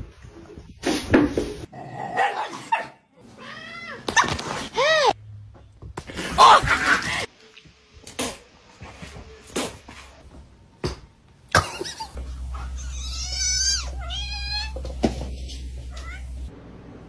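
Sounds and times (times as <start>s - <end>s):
cat meowing: 12.8s - 14.9s.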